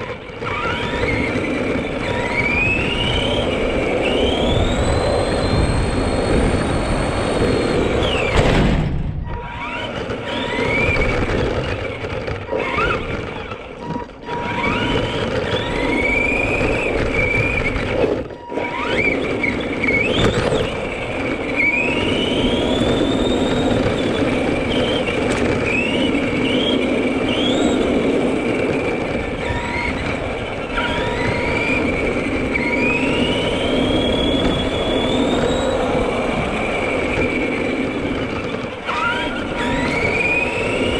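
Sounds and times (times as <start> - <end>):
toy truck electric motor whining: 0.0 - 8.4, 9.2 - 40.9.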